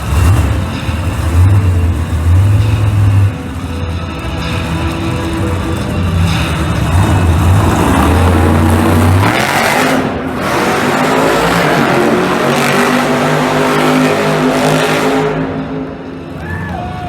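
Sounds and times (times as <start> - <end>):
truck engines revving: 0.0 - 17.0.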